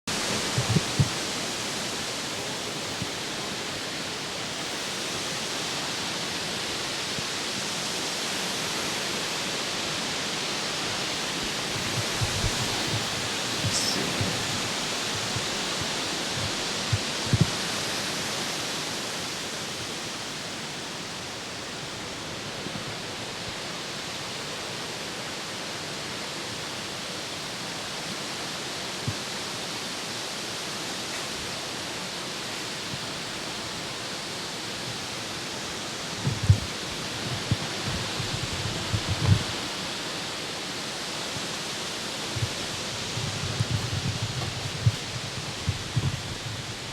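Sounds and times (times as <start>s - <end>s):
rain falling on a lake: 0.1s - 46.9s.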